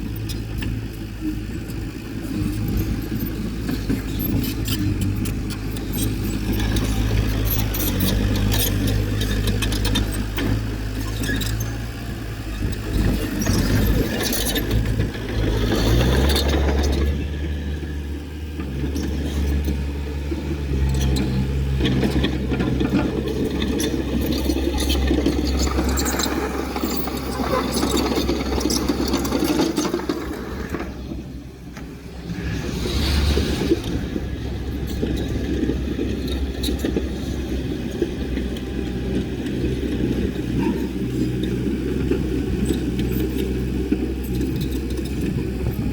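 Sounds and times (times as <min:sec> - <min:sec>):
heavy diesel engine under load: 0:00.0 - 0:45.9
scraping noise: 0:31.8 - 0:35.1.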